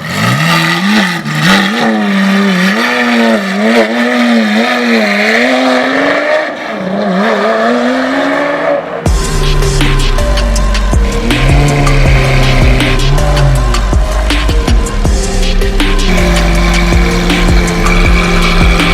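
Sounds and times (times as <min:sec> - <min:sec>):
sports car engine revving: 0:00.0 - 0:18.9
music with deep beat: 0:09.1 - 0:18.9.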